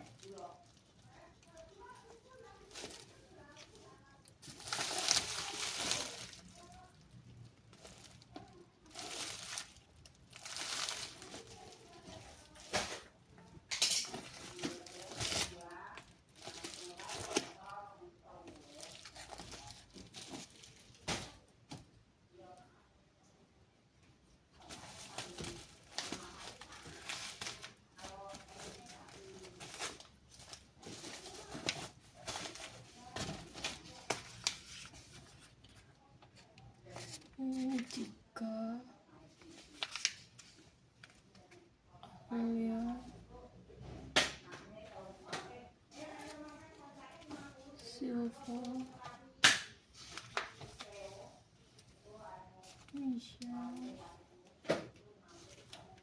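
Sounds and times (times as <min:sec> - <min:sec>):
packaging rustling and crinkling: 0:00.0 - 0:13.1, 0:14.0 - 0:21.4, 0:24.6 - 0:35.9, 0:39.4 - 0:41.3.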